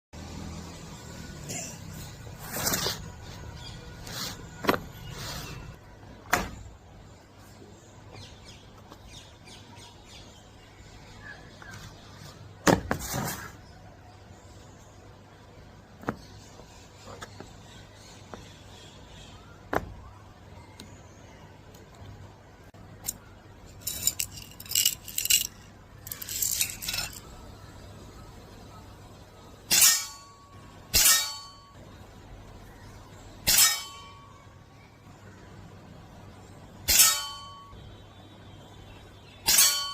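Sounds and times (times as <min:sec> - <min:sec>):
small metal objects clinking: 0:23.0 - 0:27.3.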